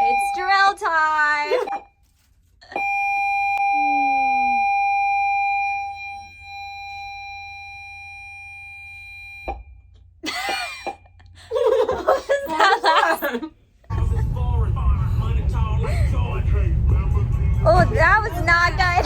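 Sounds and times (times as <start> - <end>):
short falling tone: 3.6 - 4.8
high-pitched electronic tone: 3.6 - 5.2.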